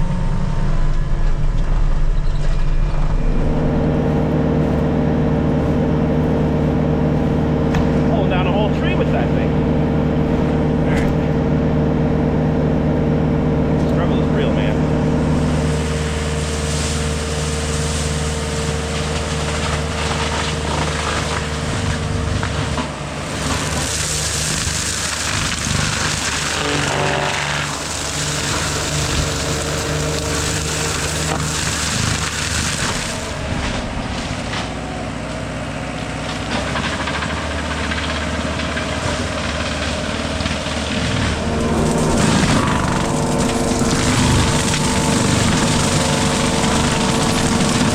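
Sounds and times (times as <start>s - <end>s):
diesel engine humming: 0.0s - 47.9s
mulcher chewing brush and wood: 13.7s - 47.9s.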